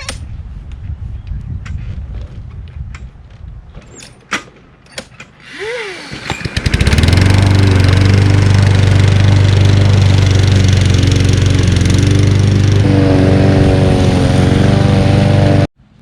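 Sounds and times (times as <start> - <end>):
lawn mower engine running: 5.3 - 15.7
starter cord whir: 5.4 - 10.0.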